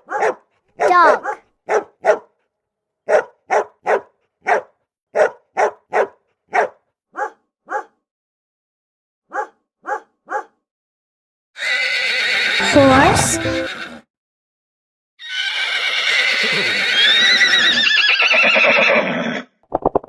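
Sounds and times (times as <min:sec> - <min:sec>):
dog barking: 0:00.0 - 0:02.4, 0:03.0 - 0:08.0, 0:09.3 - 0:10.6.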